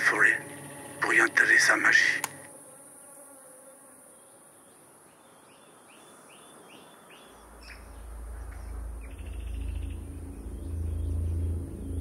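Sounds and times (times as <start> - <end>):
steady high hiss: 0.0 - 2.7
bird chirping: 4.1 - 12.0
low rumble: 7.5 - 12.0.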